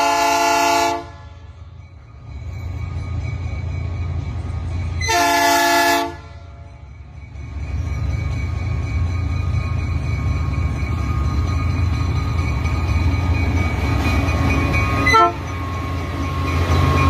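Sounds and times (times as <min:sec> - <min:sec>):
locomotive air horn blast: 0:00.0 - 0:01.4, 0:05.0 - 0:06.4, 0:15.0 - 0:15.4
low rumble of train: 0:00.0 - 0:17.0.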